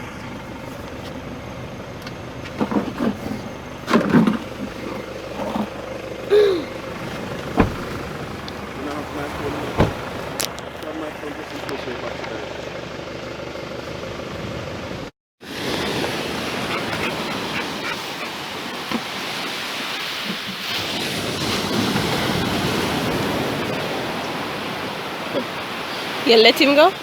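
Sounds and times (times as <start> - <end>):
outdoor rushing noise: 2.5 - 11.8.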